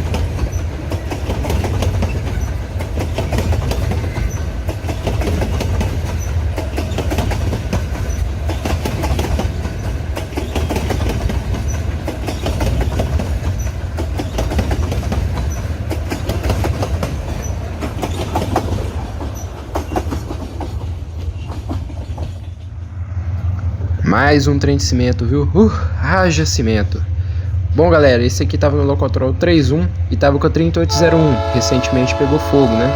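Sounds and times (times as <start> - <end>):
wheels clicking over rail joints: 0.0 - 22.7
train wagons rumbling past: 0.0 - 32.9.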